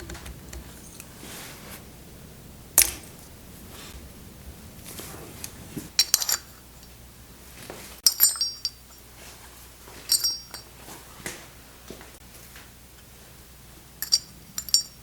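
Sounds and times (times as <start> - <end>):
metal tools clinking: 6.0 - 7.0, 8.0 - 9.0, 10.0 - 10.7, 14.0 - 15.0.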